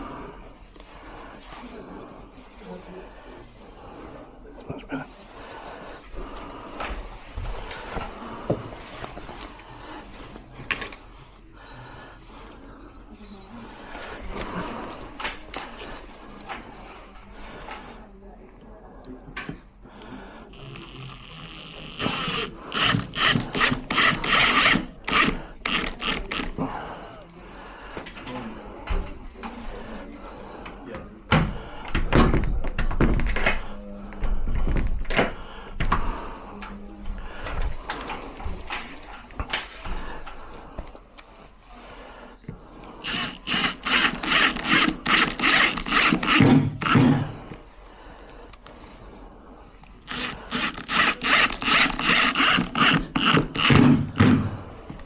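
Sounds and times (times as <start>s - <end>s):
hand tool rasping on lock: 20.5s - 26.6s, 43.0s - 47.2s, 50.0s - 54.4s.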